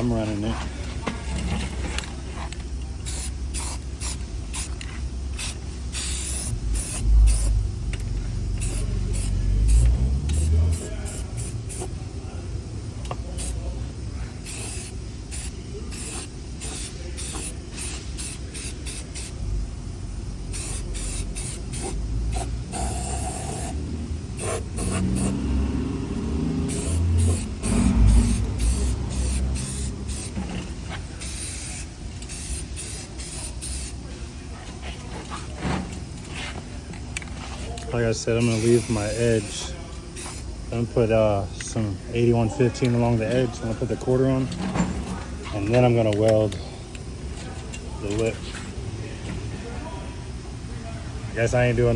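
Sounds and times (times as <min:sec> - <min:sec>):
aerosol spray hissing: 0:03.0 - 0:04.7, 0:05.4 - 0:07.6, 0:08.6 - 0:11.9, 0:14.4 - 0:19.4, 0:20.4 - 0:23.8, 0:24.4 - 0:25.7, 0:26.4 - 0:30.4, 0:31.2 - 0:34.0, 0:38.4 - 0:40.4.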